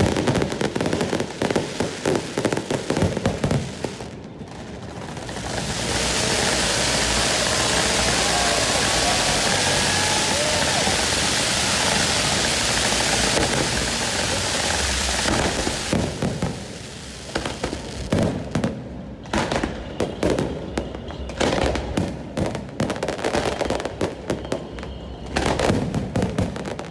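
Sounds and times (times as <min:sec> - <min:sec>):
fireworks bangs and crackling: 0:00.0 - 0:26.9
steady rushing noise: 0:04.6 - 0:17.4.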